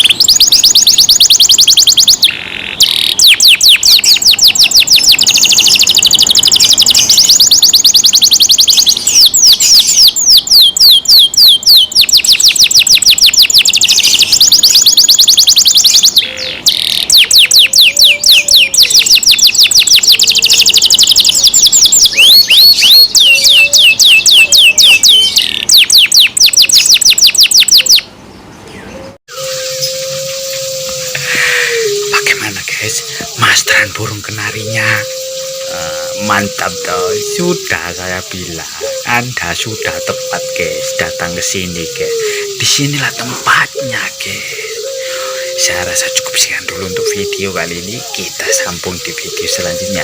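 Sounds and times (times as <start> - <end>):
canary singing trilled song: 0.0 - 31.0.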